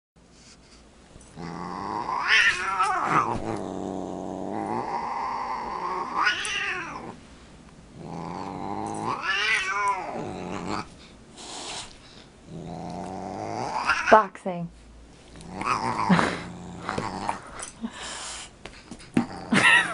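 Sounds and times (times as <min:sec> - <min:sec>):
cat growling and yowling: 0:01.4 - 0:07.2, 0:08.0 - 0:10.9, 0:12.5 - 0:14.2, 0:15.4 - 0:17.4.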